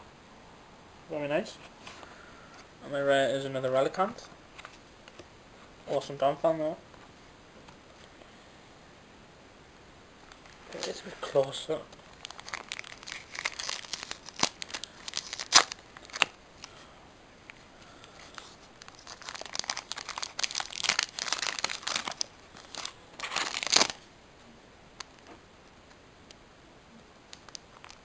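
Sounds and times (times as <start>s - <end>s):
foil wrapper crinkling and tearing: 12.0s - 16.8s, 18.0s - 24.1s, 27.3s - 28.0s.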